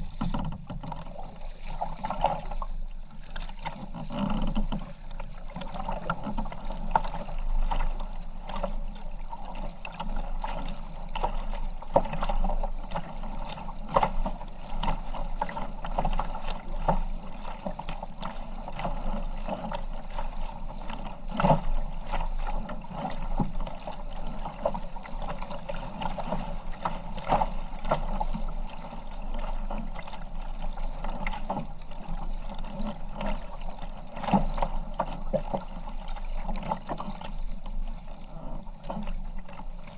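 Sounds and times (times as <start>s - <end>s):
paddle knocks: 0.0s - 2.6s, 3.2s - 8.8s
kayak paddle splashing: 0.0s - 39.9s.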